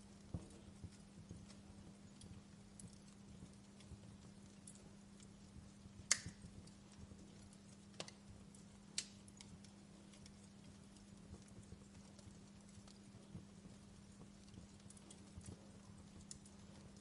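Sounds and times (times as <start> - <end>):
faint low hum: 0.0 - 17.0
fire crackling: 0.0 - 17.0.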